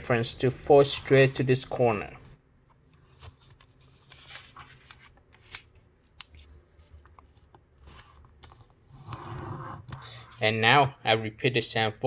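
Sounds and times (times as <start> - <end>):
paper folding and crinkling: 3.0 - 8.8.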